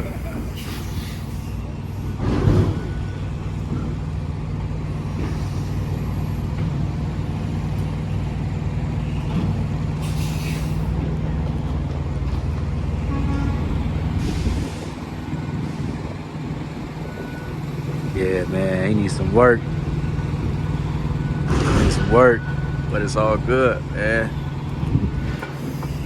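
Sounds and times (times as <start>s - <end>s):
diesel truck engine running: 0.0s - 26.0s
air brake hisses: 0.2s - 2.2s, 10.0s - 11.0s, 14.2s - 15.0s, 25.3s - 26.0s.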